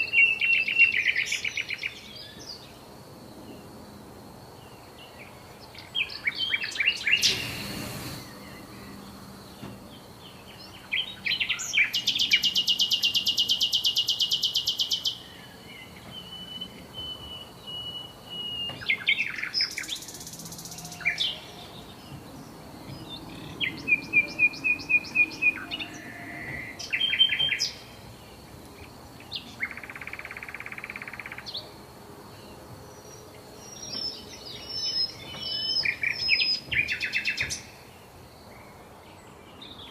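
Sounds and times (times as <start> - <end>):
songbirds singing and chirping: 0.0 - 39.9
faint high whine: 2.7 - 11.7.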